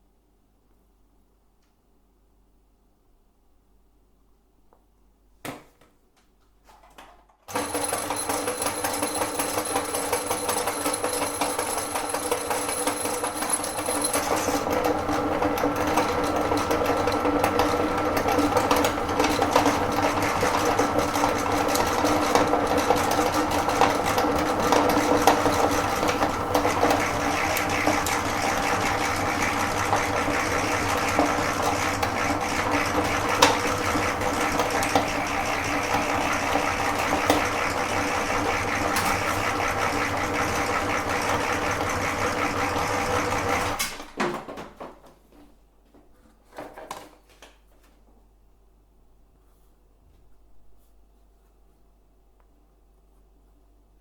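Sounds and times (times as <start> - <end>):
meat grinder motor humming: 7.5 - 43.8.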